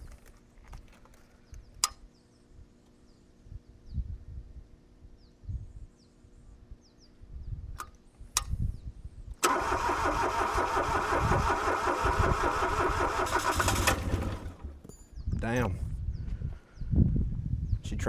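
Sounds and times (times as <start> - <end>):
sharp clicks: 7.8 - 8.6
diesel engine starter cranking: 9.4 - 14.9.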